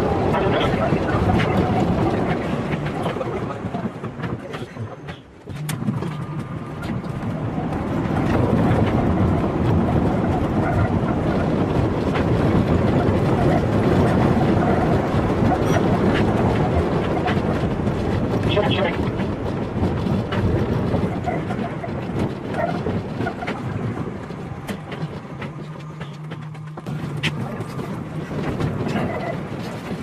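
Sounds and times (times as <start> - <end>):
moving train running: 0.0 - 30.0.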